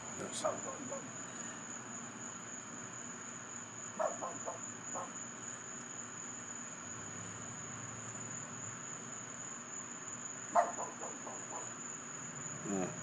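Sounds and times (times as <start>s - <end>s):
crickets chirring: 0.0s - 13.0s
dog barking: 0.3s - 1.1s, 4.0s - 5.2s, 10.5s - 11.8s.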